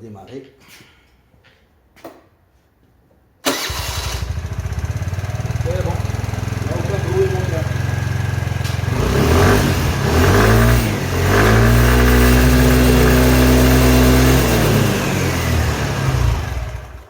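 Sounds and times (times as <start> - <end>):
scooter engine revving: 3.5 - 17.0.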